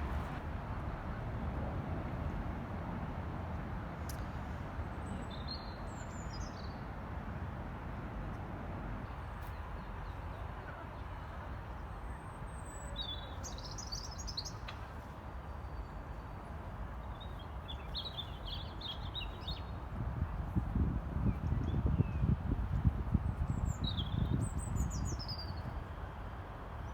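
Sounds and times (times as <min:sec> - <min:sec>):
low outdoor rumble: 0:00.0 - 0:02.7.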